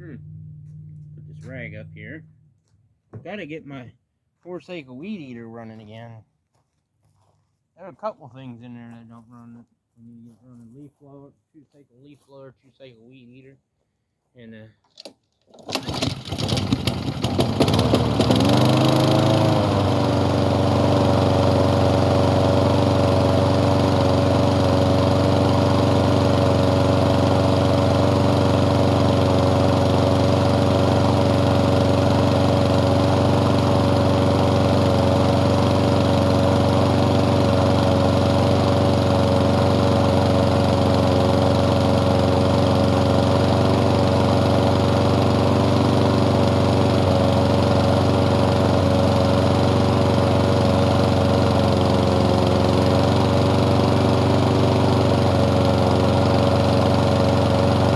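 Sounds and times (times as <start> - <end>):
lawn mower engine starting: 14.9 - 57.9.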